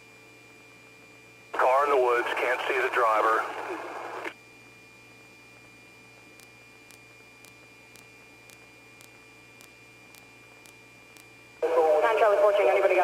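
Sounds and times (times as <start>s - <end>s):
electrical hum and hiss: 0.0s - 13.0s
faint ticks: 6.3s - 11.3s.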